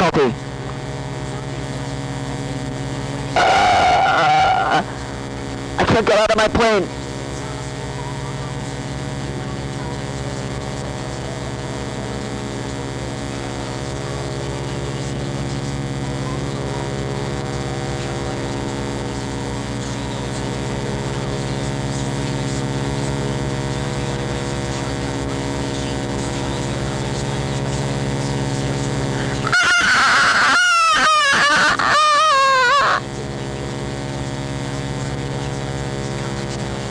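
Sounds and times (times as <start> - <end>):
steady hum with overtones: 0.0 - 36.9
wavering high-pitched sound: 3.4 - 5.2, 29.5 - 33.0.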